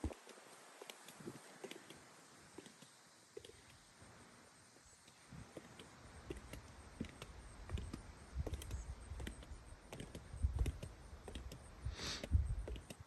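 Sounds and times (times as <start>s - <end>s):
footsteps on outdoor steps: 0.0s - 3.8s, 5.0s - 13.0s
brief hiss: 11.8s - 12.4s.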